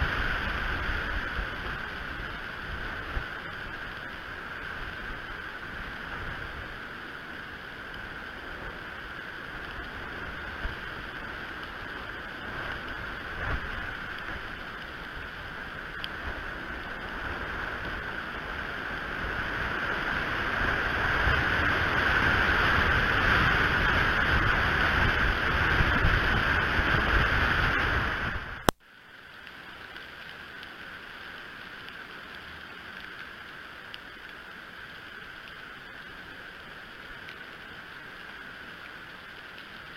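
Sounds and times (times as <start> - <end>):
wind on microphone: 0.0 - 7.0, 8.0 - 28.7.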